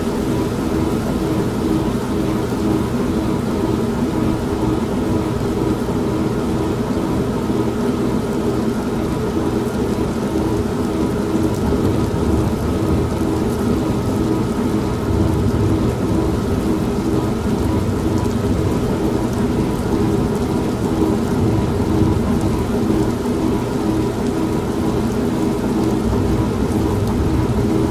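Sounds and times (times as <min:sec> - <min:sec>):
steady rain: 0:00.0 - 0:27.9
washing machine motor hum: 0:00.0 - 0:27.9
low rumble of thunder: 0:10.5 - 0:27.9.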